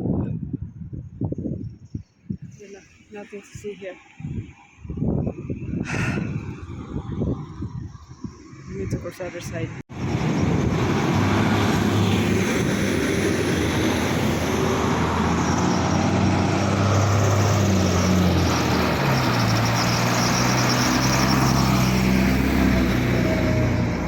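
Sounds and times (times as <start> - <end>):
tyre and road noise: 0.9 - 24.0
vehicle engines passing: 5.5 - 24.0.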